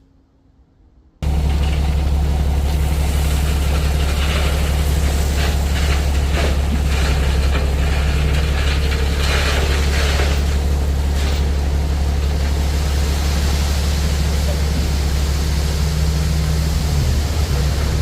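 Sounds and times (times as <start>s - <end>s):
clanks and rattles: 1.2s - 12.6s
heavy engine droning: 1.2s - 18.0s.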